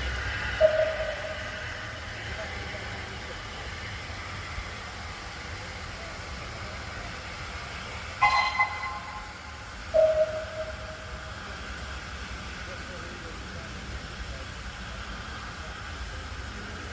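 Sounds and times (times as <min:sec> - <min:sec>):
steady background noise: 0:00.0 - 0:16.9
railway whistle blasts: 0:00.6 - 0:02.1, 0:08.2 - 0:11.4.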